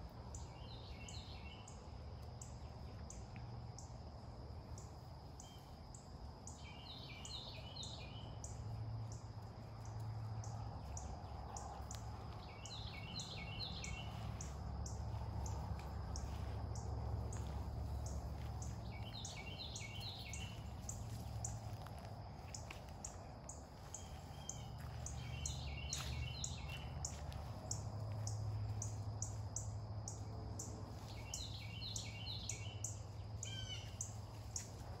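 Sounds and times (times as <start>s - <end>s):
songbird singing: 0.0s - 35.0s.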